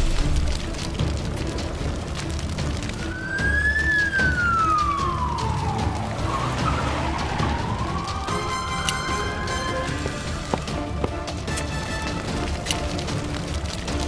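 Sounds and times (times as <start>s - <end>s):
background music: 0.0s - 14.0s
siren wailing: 3.0s - 9.9s.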